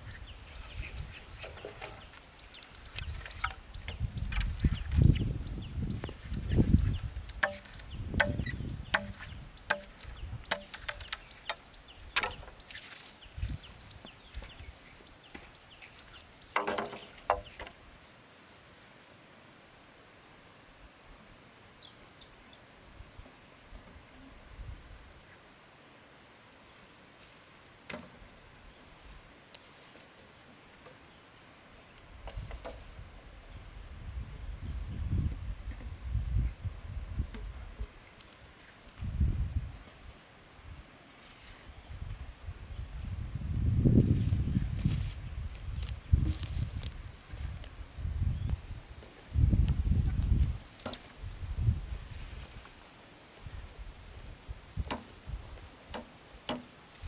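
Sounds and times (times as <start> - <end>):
insects droning: 0.2 - 57.0
sharp knocks: 7.4 - 12.5.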